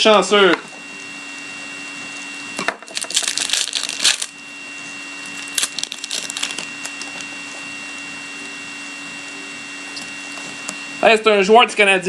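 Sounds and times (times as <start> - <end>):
card pack wrapper crinkling: 2.8 - 4.4, 5.3 - 7.3.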